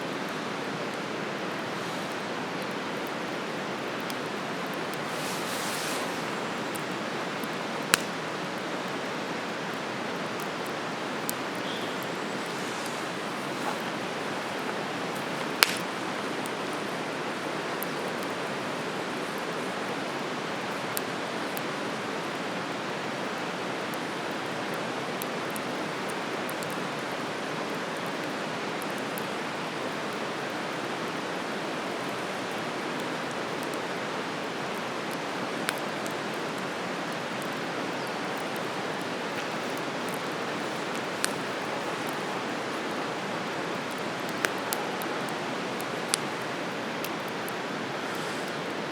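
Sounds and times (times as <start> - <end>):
fire hissing: 1.4 - 8.6, 9.6 - 19.7, 37.2 - 48.9
campfire crackling pops: 1.4 - 19.7, 34.6 - 48.8.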